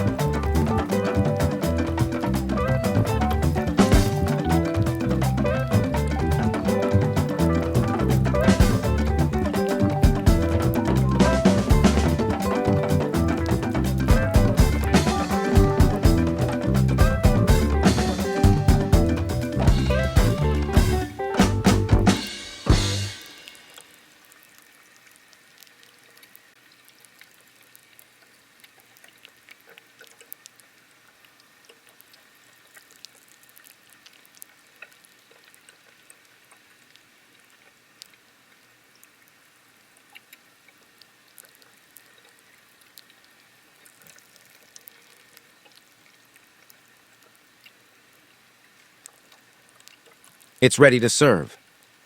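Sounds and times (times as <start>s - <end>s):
food sizzling in a pot: 22.1s - 24.9s.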